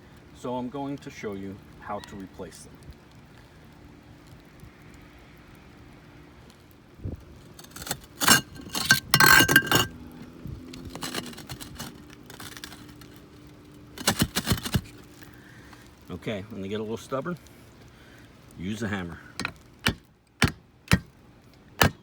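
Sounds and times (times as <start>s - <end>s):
roof tile pieces clinking and scraping: 7.6s - 9.9s, 10.8s - 13.2s
ringing chink of tile: 8.2s - 9.9s.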